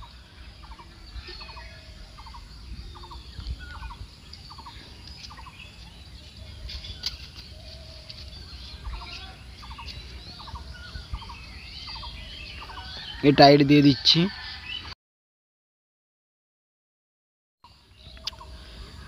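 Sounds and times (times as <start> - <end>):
birds calling with trilled notes: 0.0 - 15.0, 17.6 - 19.0
higher bird chirps: 0.0 - 15.0.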